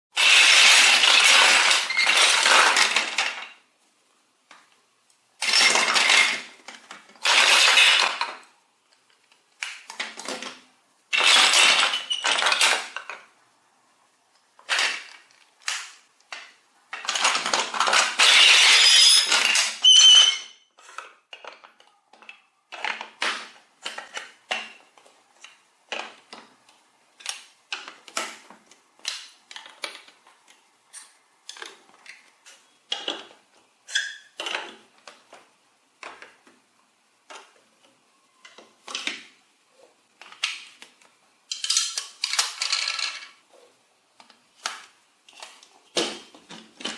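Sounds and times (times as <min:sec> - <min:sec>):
toy vehicles and track clattering: 0:00.2 - 0:03.6, 0:05.4 - 0:13.4, 0:14.5 - 0:33.4, 0:38.4 - 0:39.4, 0:40.2 - 0:43.4, 0:44.2 - 0:46.9.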